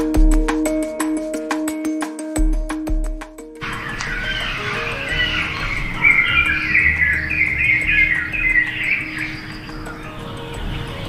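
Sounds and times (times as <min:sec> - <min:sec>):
soft background music: 0:00.0 - 0:11.0
songbirds chirping: 0:03.6 - 0:11.0.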